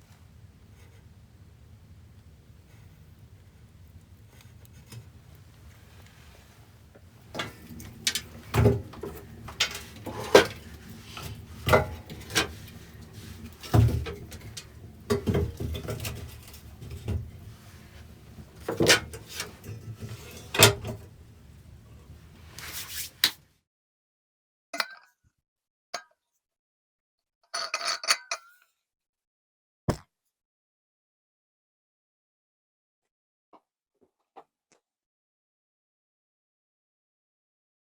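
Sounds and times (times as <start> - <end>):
wood knocking and scraping: 3.6 - 23.3.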